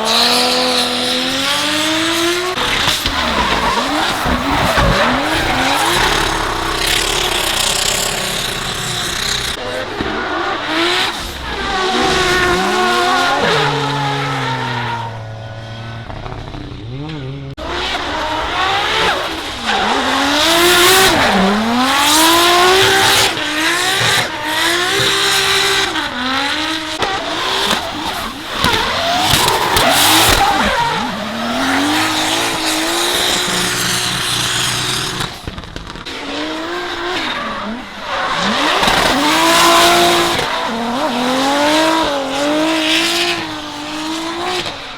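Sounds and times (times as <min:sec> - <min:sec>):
car engines revving: 0:00.0 - 0:44.9
tyres squealing: 0:02.5 - 0:17.0.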